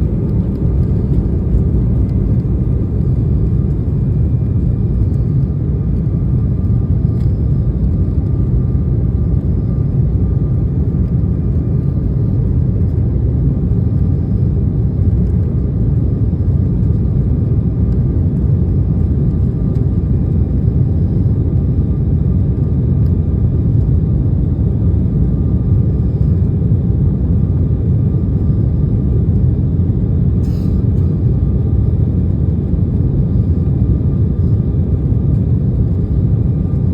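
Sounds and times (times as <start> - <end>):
faint thin whine: 0.0 - 29.4
jet engines rumbling in cabin: 0.0 - 36.9.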